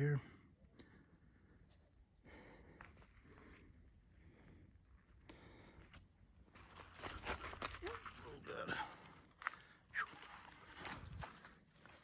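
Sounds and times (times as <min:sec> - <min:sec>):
footsteps on wet mud: 0:06.5 - 0:12.0.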